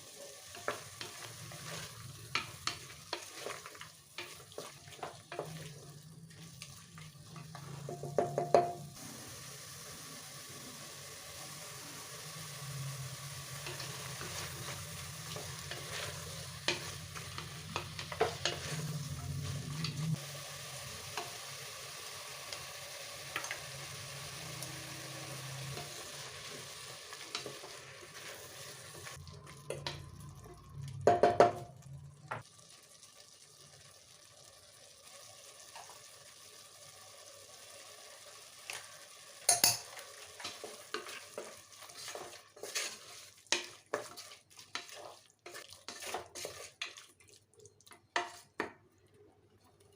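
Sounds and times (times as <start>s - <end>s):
vegetables sizzling in a pot: 0.0s - 49.1s
spoon scraping metal pot: 41.8s - 47.0s.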